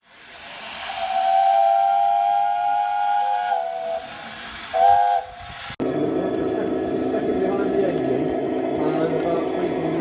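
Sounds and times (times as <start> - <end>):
steam hissing: 0.0 - 5.8
steam whistle blast: 0.0 - 5.8.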